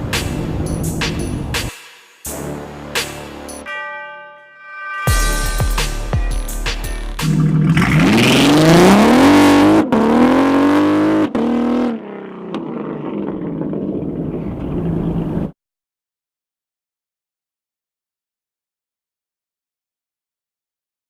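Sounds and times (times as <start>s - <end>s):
car exhaust at full throttle: 7.2s - 15.5s.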